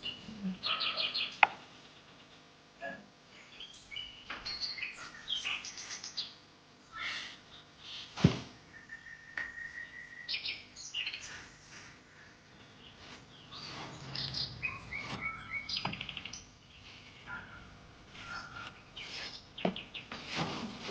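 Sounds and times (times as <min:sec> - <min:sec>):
small birds chirping: 0:00.0 - 0:20.9
whistled note: 0:13.8 - 0:16.2.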